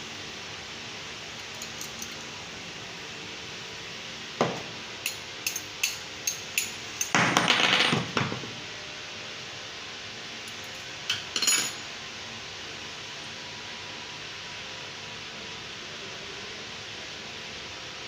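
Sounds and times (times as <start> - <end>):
metal tools clinking: 1.4 - 2.3, 5.1 - 7.2, 10.5 - 11.9.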